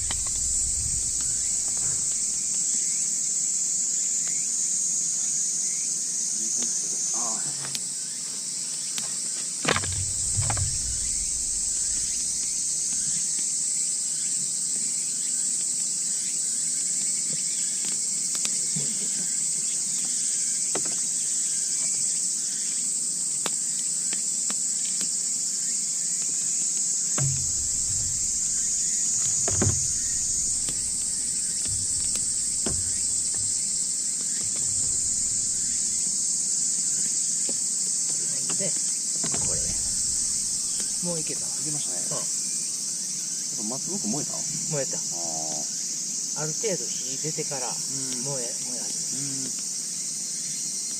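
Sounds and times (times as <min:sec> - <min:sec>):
low knocks: 0:00.0 - 0:02.6, 0:09.7 - 0:13.2, 0:27.2 - 0:36.3, 0:39.2 - 0:41.1
insects chorus: 0:00.0 - 0:50.9.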